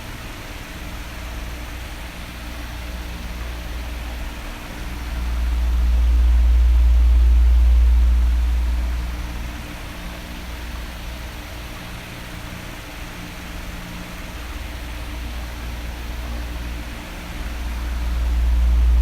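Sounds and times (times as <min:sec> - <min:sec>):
electric fan running: 0:00.0 - 0:19.0
deep low rush: 0:04.9 - 0:09.5, 0:17.5 - 0:19.0.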